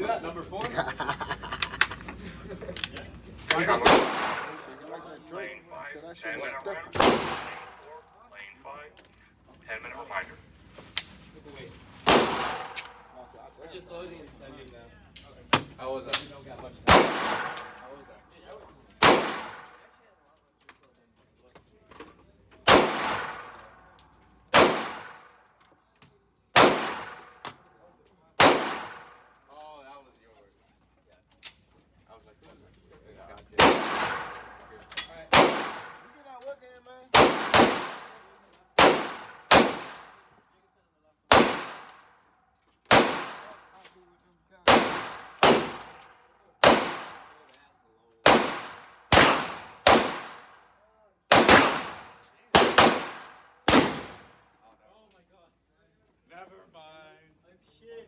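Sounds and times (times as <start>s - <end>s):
gunshots with echo: 3.6s - 5.0s, 6.9s - 7.9s, 12.1s - 12.8s, 16.9s - 17.8s, 19.0s - 19.6s, 22.7s - 23.6s, 24.5s - 25.3s, 26.6s - 27.4s, 28.4s - 29.2s, 33.6s - 34.6s, 35.3s - 36.1s, 37.2s - 38.2s, 38.8s - 40.1s, 41.3s - 41.9s, 42.9s - 43.5s, 44.7s - 45.9s, 46.6s - 47.4s, 48.3s - 50.5s, 51.3s - 54.3s.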